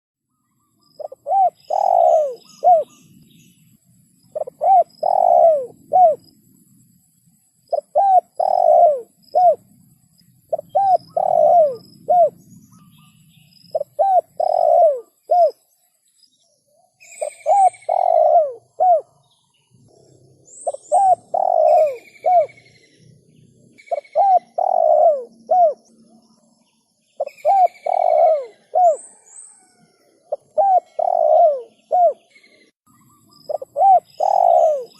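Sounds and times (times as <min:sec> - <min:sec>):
small birds chirping and whistling: 0:00.3 - 0:06.3, 0:10.4 - 0:34.9
dove cooing: 0:01.0 - 0:03.2, 0:04.3 - 0:06.4, 0:07.7 - 0:09.8, 0:10.5 - 0:13.1, 0:13.7 - 0:15.6, 0:17.0 - 0:19.2, 0:19.9 - 0:26.0, 0:27.2 - 0:32.7, 0:33.5 - 0:34.9.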